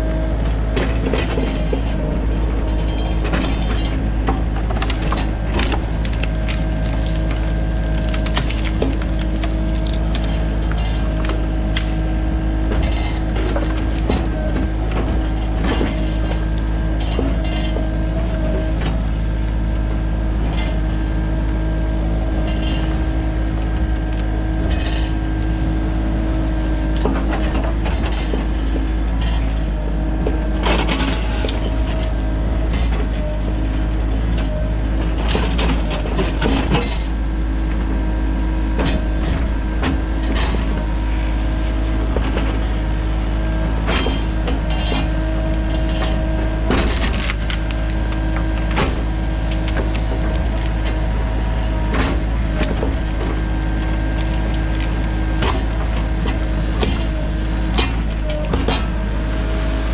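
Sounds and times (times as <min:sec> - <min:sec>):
excavator diesel engine running: 0:00.0 - 0:59.9
knocks and cracks: 0:46.0 - 0:51.0.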